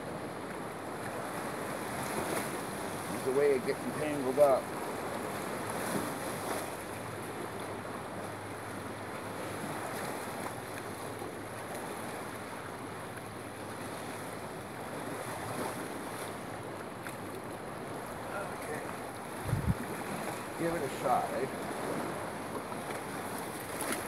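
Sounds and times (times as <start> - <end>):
waves washing against pier: 0.0 - 24.0
wind noise on microphone: 19.4 - 20.2.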